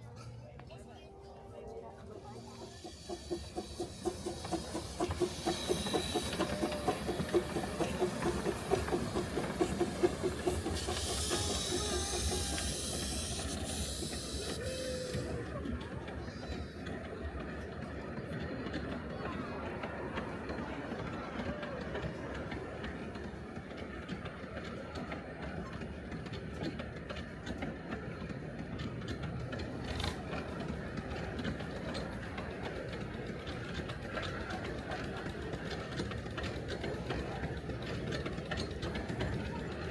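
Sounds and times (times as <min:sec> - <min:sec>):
steam locomotive chuffing: 0:00.0 - 0:39.9
steam hissing: 0:02.2 - 0:15.8
miniature train wheels clicking: 0:02.2 - 0:39.9.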